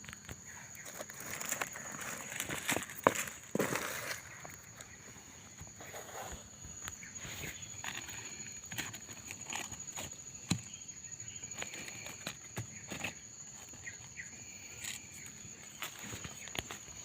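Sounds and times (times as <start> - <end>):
footsteps crunching through dry leaves: 0.5 - 5.0.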